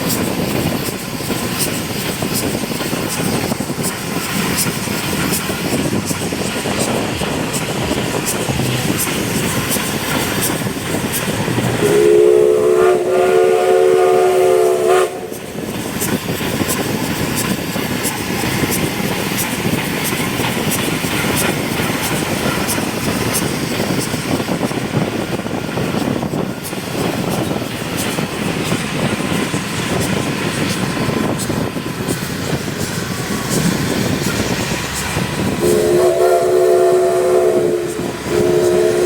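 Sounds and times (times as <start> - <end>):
train rumbling on track: 0.0 - 39.0
steam locomotive whistle: 11.3 - 15.5, 35.5 - 39.0.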